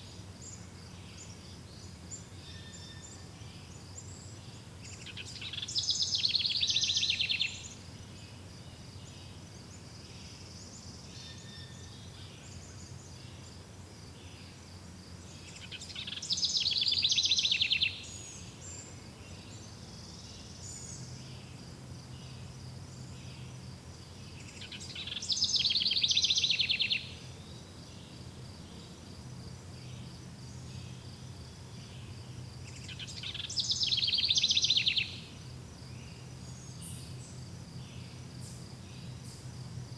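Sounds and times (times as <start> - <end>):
songbird trilling: 5.1 - 7.7, 15.6 - 18.4, 24.4 - 27.2, 32.7 - 35.3.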